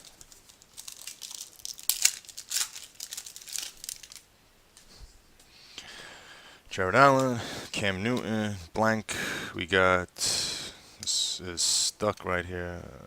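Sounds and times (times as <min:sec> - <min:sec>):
wrapper tearing and crinkling: 0:00.0 - 0:04.3.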